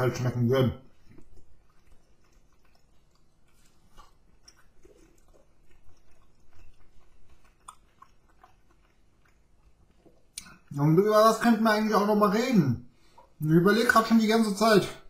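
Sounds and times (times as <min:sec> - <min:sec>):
man chewing chicken wings: 0:00.0 - 0:10.8.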